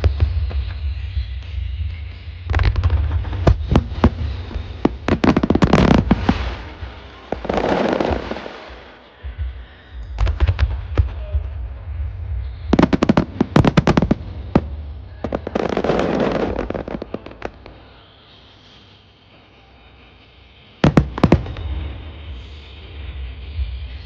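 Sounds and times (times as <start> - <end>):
fireworks rapid bangs: 2.5 - 8.9, 12.7 - 17.6, 20.8 - 21.9
deep booming: 9.3 - 17.6.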